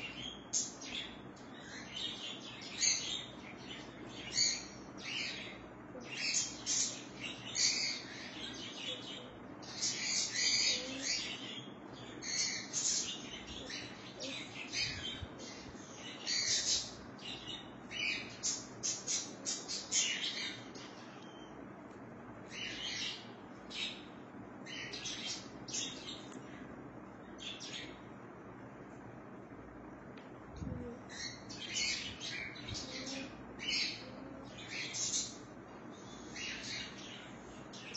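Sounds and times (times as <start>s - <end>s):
birds chirping: 0.0s - 29.1s, 30.6s - 37.9s.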